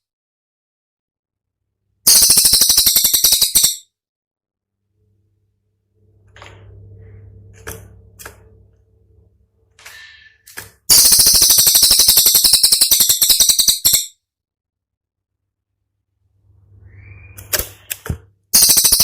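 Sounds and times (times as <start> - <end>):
fast rattling birdsong burst: 2.1 - 3.8, 10.9 - 14.1, 18.6 - 19.0
bird call notes and chirp: 10.9 - 14.1.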